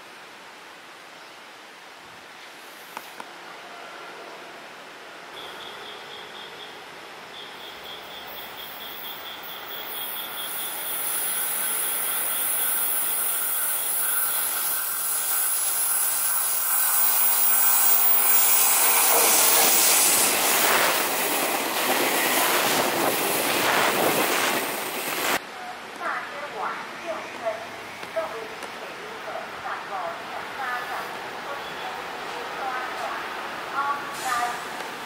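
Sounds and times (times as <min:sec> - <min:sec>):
electric train approaching: 0:03.4 - 0:25.4
wheel squeal: 0:09.0 - 0:20.0.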